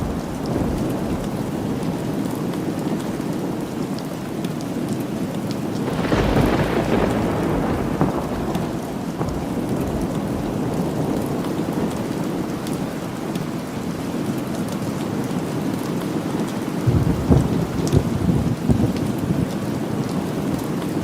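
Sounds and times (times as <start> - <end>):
thunder rolling: 0.0 - 2.0, 5.9 - 12.4, 16.8 - 19.5
steady rain falling: 0.0 - 21.0.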